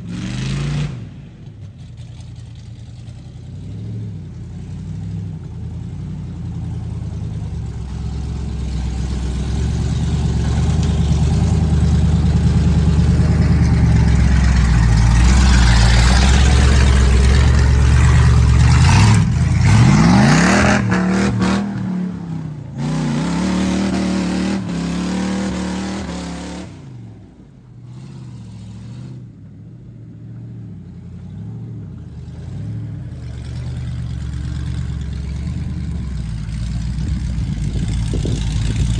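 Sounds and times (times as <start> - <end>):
truck engine revving in mud: 0.0 - 1.8, 3.2 - 29.4.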